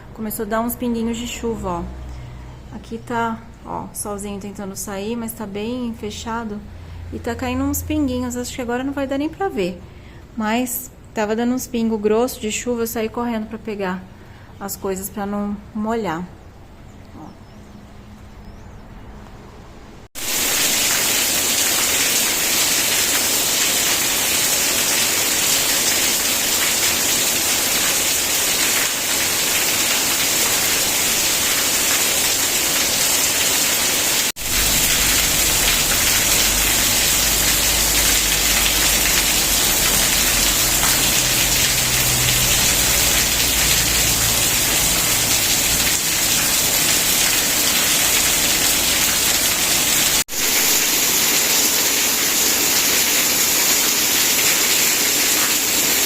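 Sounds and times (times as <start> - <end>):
heavy rain hiss: 20.1 - 56.0.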